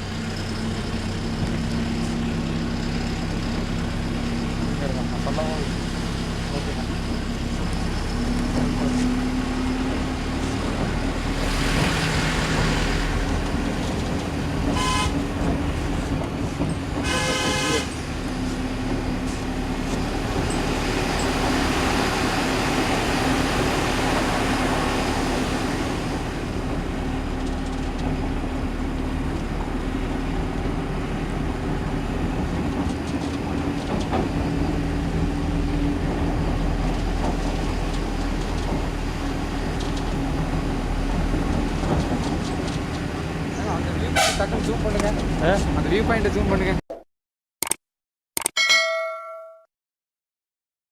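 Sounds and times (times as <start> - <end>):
truck engine running: 0.0 - 33.8
vehicle horn: 14.7 - 15.3, 17.0 - 18.0, 44.2 - 44.5.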